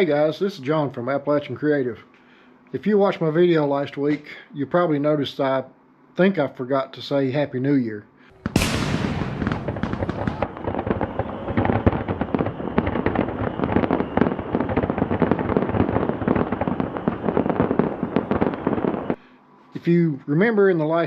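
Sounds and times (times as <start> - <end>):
firework bang: 8.4 - 16.8
fireworks crackling: 8.4 - 19.2.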